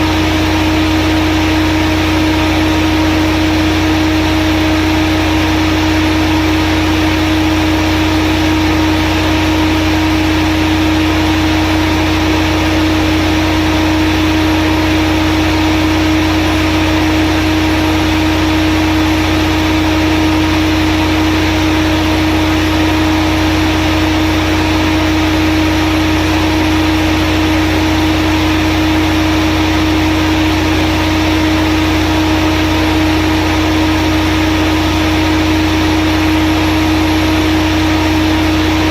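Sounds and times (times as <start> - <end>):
diesel generator drone: 0.0 - 38.9.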